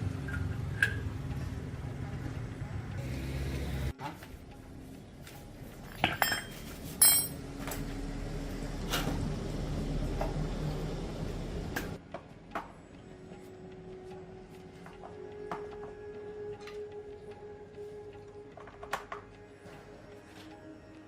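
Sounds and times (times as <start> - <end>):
metal parts clinking on hard surface: 5.9 - 7.4.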